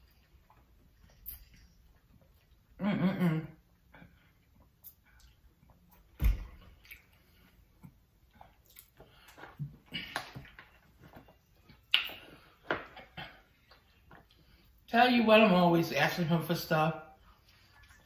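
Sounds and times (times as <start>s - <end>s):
wet chewing and smacking: 0.0s - 2.8s, 4.1s - 14.9s.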